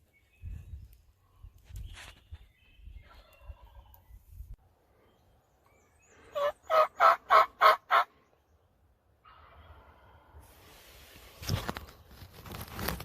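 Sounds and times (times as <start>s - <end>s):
turkey yelps: 6.3s - 8.1s.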